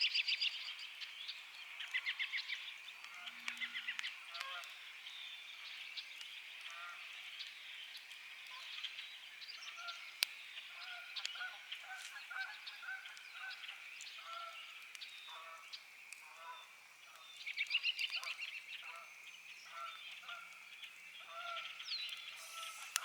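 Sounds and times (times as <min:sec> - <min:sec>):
campfire crackling and popping: 0:00.0 - 0:23.0
birds honking: 0:22.3 - 0:23.0.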